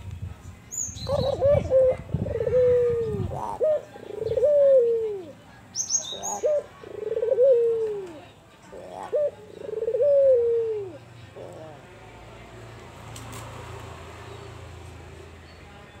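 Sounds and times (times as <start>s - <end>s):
dove cooing: 1.0s - 5.4s, 6.0s - 11.9s.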